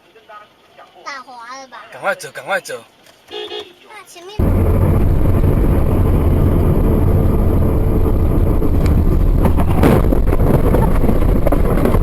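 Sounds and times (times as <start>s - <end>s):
moving vehicle rumble: 2.9s - 12.0s.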